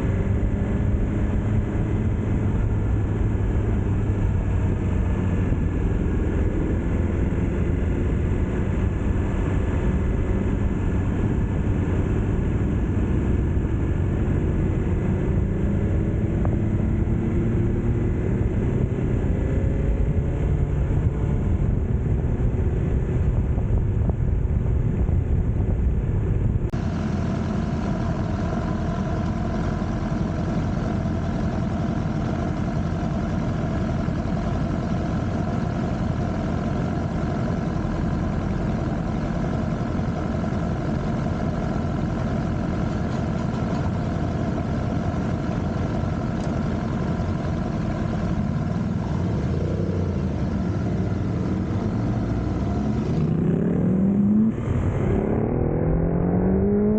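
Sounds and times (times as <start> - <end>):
motorcycle engine revving: 0.0 - 23.2, 48.6 - 56.9
road and wind noise: 0.0 - 56.9.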